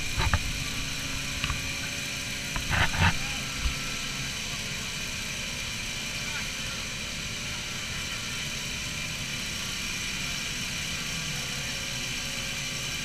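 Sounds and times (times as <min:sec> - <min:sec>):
car engine running: 0:00.0 - 0:11.8.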